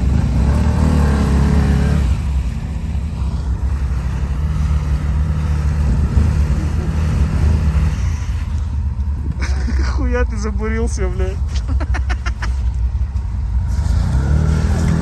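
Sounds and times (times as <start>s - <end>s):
quad bike engine revving: 0.0s - 10.0s, 13.5s - 15.0s.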